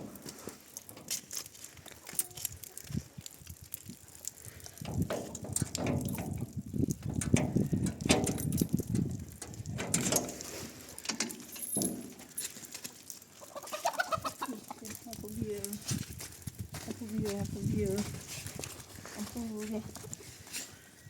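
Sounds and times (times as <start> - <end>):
chickens clucking: 13.4 - 15.0.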